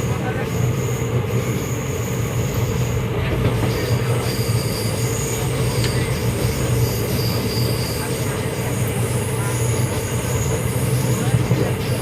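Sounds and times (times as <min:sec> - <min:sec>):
train rumbling on rails: 0:00.0 - 0:12.0
high-pitched wheel squealing: 0:03.6 - 0:08.6.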